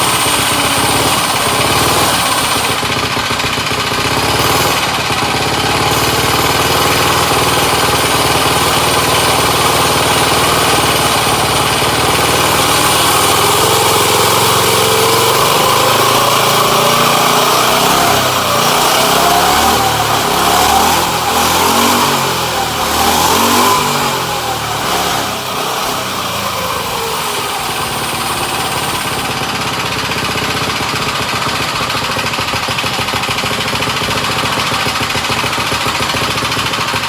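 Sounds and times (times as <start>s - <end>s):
mini bike engine running: 0.0s - 37.0s.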